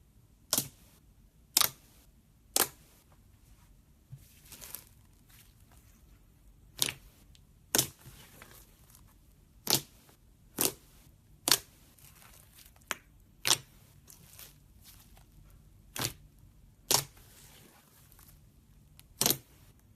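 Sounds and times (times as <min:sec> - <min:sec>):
slime popping: 0:16.9 - 0:17.5, 0:19.0 - 0:19.7.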